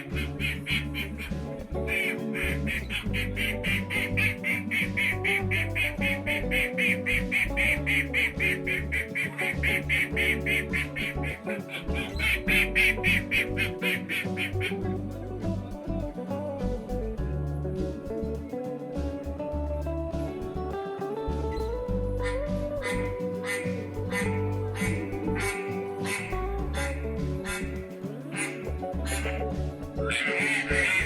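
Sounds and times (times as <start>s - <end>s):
ducks quacking: 0.0s - 15.6s, 22.2s - 31.0s
background music: 0.0s - 31.0s.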